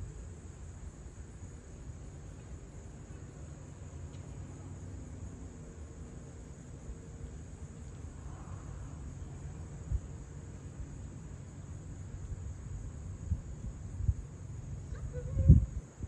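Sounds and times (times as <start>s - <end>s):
insects chirring: 0.0s - 16.0s
low uneven rumble: 0.0s - 16.0s.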